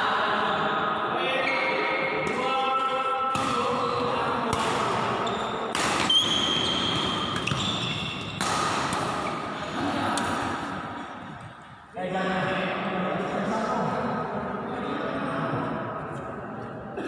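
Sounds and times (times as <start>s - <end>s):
rackets hitting shuttlecock: 2.2s - 11.6s.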